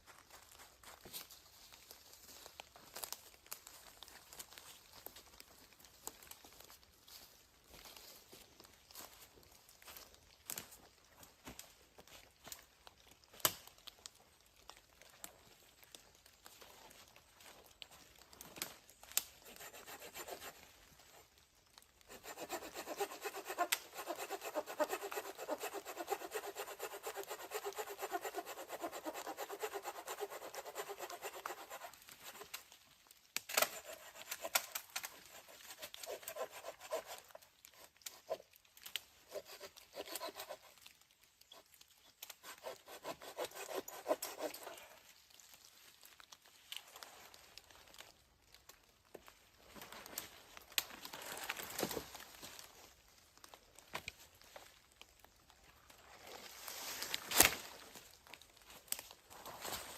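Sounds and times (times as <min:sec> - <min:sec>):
hand saw cutting wood: 0:19.4 - 0:20.6, 0:22.1 - 0:32.5, 0:33.5 - 0:38.4, 0:39.2 - 0:40.8, 0:42.4 - 0:44.9.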